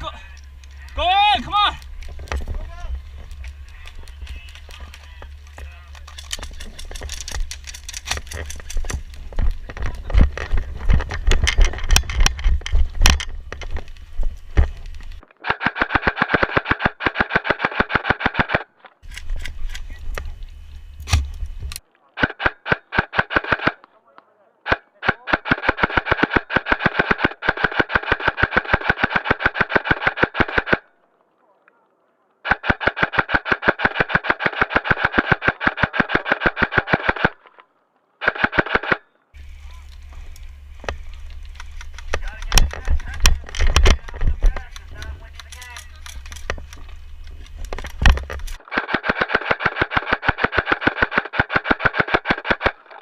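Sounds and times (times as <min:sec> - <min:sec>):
handling noise rumble: 0:00.0 - 0:15.2, 0:39.4 - 0:48.7
steady low hum: 0:00.0 - 0:15.2, 0:19.0 - 0:21.8, 0:38.2 - 0:52.0
sharp crack: 0:00.0 - 0:20.3, 0:21.0 - 0:24.0, 0:24.7 - 0:30.9, 0:32.4 - 0:37.6, 0:38.2 - 0:53.0
airsoft rifle rapid firing: 0:15.4 - 0:19.2, 0:22.2 - 0:23.8, 0:24.7 - 0:30.8, 0:32.4 - 0:37.4, 0:38.2 - 0:39.0, 0:47.7 - 0:52.9
pops: 0:32.4 - 0:53.0.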